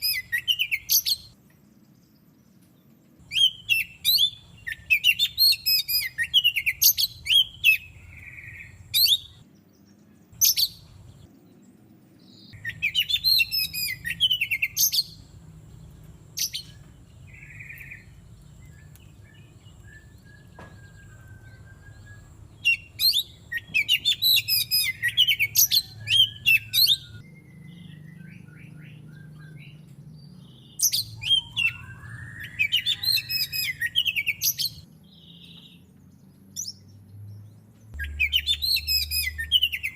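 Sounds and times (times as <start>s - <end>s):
bird singing whistles and chatter: 0.0s - 1.4s, 3.3s - 9.4s, 12.4s - 15.2s, 16.4s - 35.7s, 38.0s - 39.9s
faint bird chirps: 0.0s - 39.9s.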